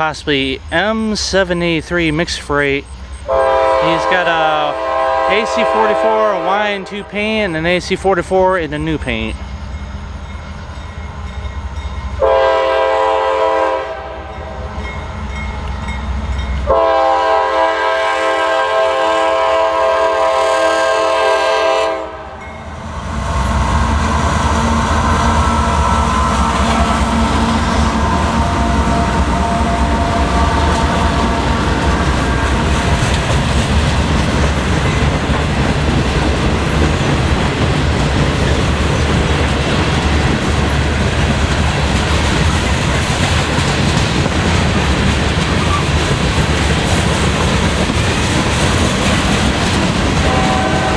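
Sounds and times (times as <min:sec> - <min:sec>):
freight train rumbling past: 0:00.0 - 0:50.9
locomotive horn chord: 0:03.3 - 0:07.2, 0:12.2 - 0:14.6, 0:16.7 - 0:22.4, 0:23.3 - 0:33.2, 0:50.3 - 0:50.9.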